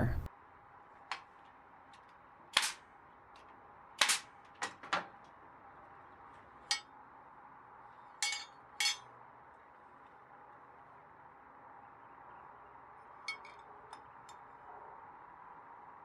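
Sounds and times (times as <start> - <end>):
wooden pieces clacking: 2.6 - 2.8, 3.4 - 5.1.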